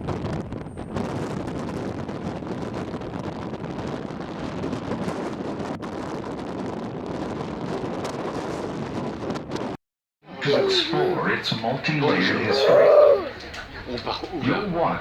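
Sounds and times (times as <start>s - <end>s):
wind buffeting microphone: 0.0s - 9.8s
boat low rumble: 0.0s - 15.0s.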